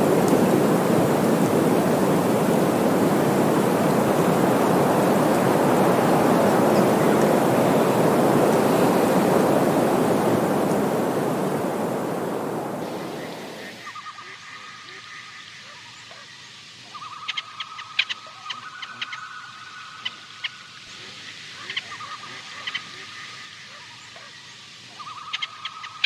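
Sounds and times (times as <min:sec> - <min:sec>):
steady rushing noise: 0:00.0 - 0:13.9.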